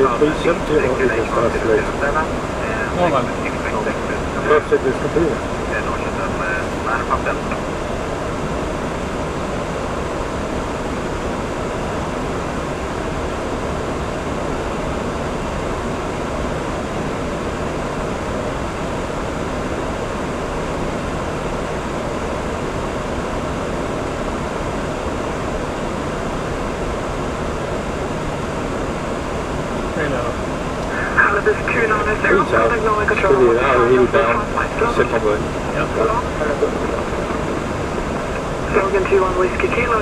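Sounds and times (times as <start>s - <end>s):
cockpit airflow noise: 0.0s - 12.8s, 24.9s - 40.0s.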